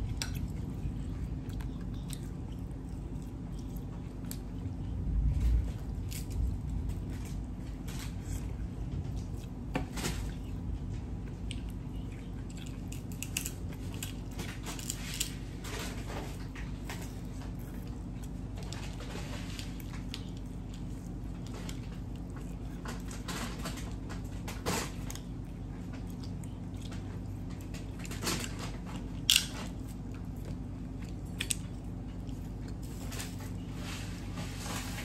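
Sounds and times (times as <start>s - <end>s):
low hum: 0.0s - 24.4s
chewing and biting: 0.0s - 34.4s.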